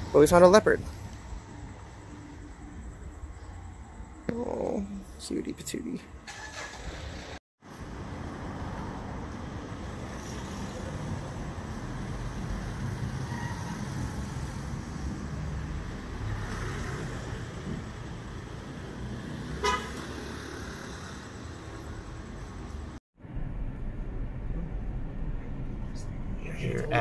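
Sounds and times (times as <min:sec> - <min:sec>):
vehicle driving on road: 0:06.2 - 0:27.0
horn toot: 0:19.6 - 0:20.0.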